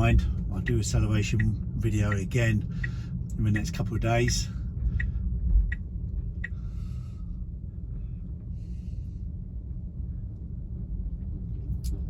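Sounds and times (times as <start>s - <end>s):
road and tyre rumble: 0.0s - 12.0s
breaths near microphone: 2.6s - 3.2s, 6.5s - 9.4s.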